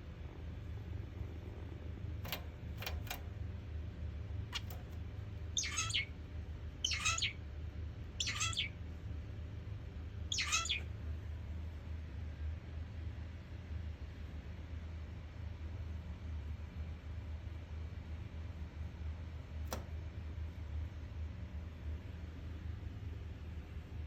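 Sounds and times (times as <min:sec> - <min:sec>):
steady low hum: 0:00.0 - 0:24.0
faint clicks: 0:02.2 - 0:03.3
finch nasal calls: 0:05.6 - 0:06.1, 0:06.8 - 0:07.4, 0:08.2 - 0:08.7, 0:10.3 - 0:10.8.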